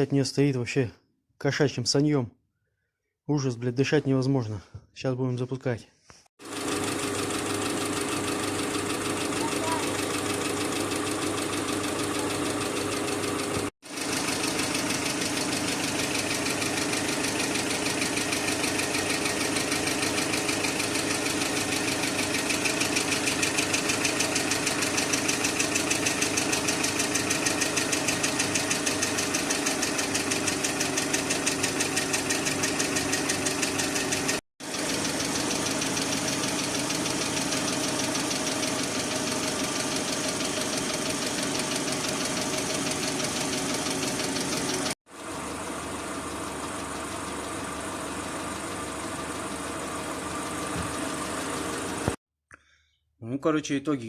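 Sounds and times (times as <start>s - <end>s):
car engine idling: 9.0s - 52.1s.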